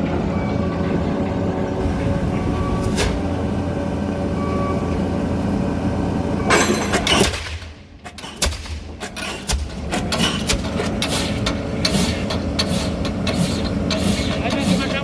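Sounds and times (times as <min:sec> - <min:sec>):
piling rig engine running: 0:00.0 - 0:15.0
pile hammer metallic impacts: 0:06.5 - 0:15.0.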